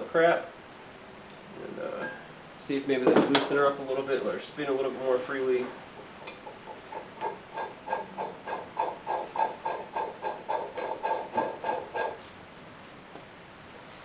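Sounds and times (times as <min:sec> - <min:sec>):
bearing clicking grind: 0:06.0 - 0:12.2.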